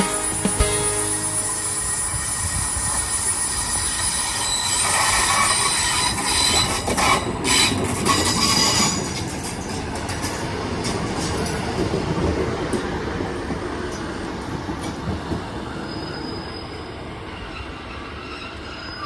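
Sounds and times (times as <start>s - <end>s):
wheels squealing: 0.0s - 9.2s, 15.7s - 19.0s
train passing: 0.0s - 19.0s.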